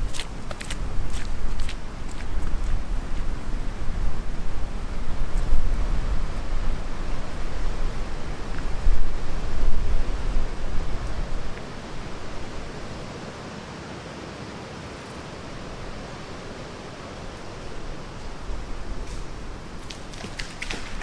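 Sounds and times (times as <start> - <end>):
wind gusts buffeting microphone: 0.0 - 13.8
rain hiss: 0.0 - 21.0.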